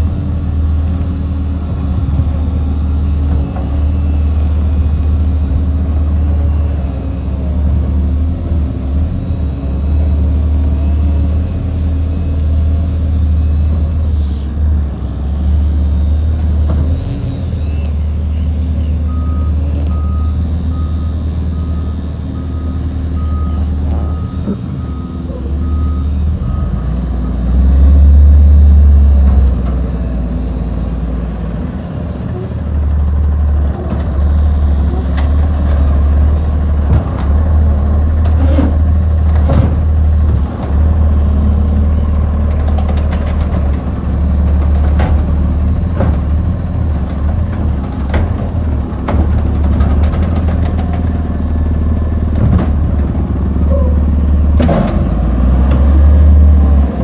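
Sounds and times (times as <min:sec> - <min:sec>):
truck diesel engine running: 0:00.0 - 0:57.0
knocks and clanks: 0:44.5 - 0:46.5, 0:52.3 - 0:53.2.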